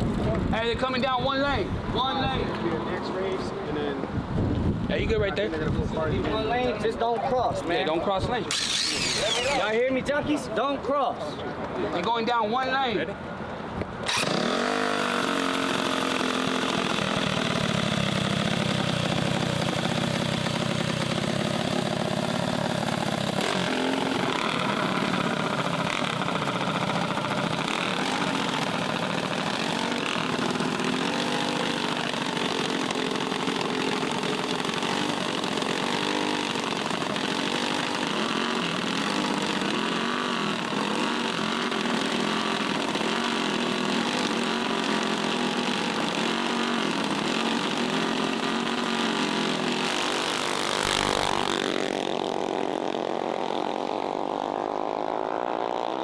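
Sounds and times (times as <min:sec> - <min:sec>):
mini bike engines revving: 0:08.4 - 0:10.5, 0:14.0 - 0:56.0.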